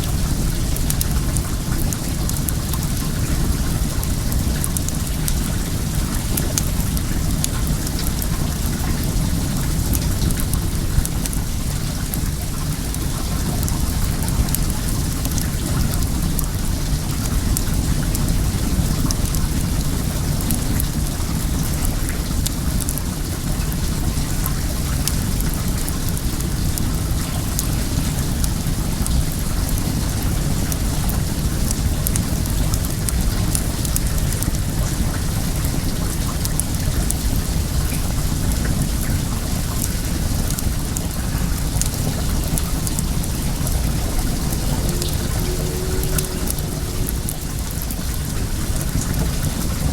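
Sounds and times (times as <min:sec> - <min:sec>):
wood fire crackling: 0:39.7 - 0:49.0.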